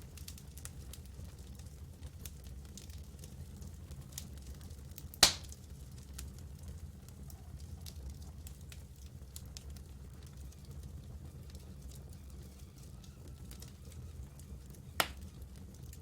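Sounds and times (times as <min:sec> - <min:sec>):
campfire crackling: 0:00.0 - 0:16.0
loud sharp pop: 0:05.2 - 0:05.5.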